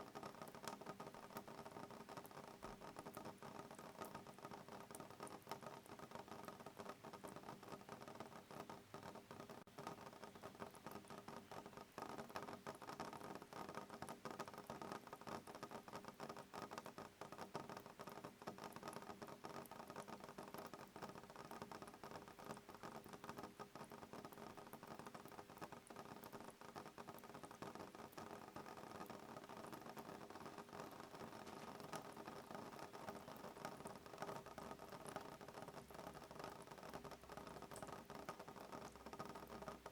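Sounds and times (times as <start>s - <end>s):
rain pattering on a window: 0.0s - 39.9s.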